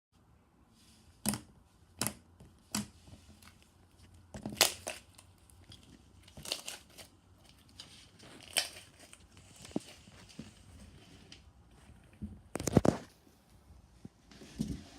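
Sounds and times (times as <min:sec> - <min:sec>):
packaging crinkling: 0:04.4 - 0:10.7.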